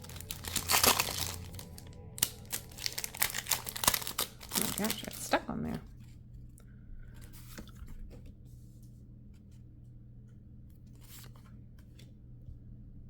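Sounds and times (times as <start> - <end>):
wrapper rustling and crinkling: 0.0 - 5.9
low steady hum: 0.0 - 13.0.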